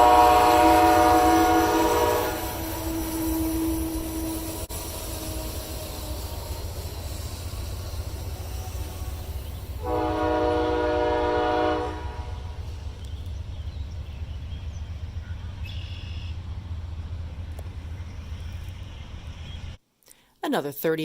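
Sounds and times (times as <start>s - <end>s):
locomotive horn blast: 0.0s - 6.7s, 8.9s - 12.7s.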